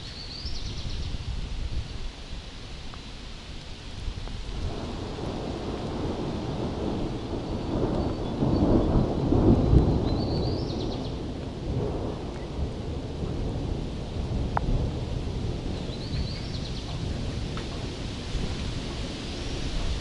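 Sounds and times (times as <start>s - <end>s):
rolling thunder: 4.4s - 20.0s.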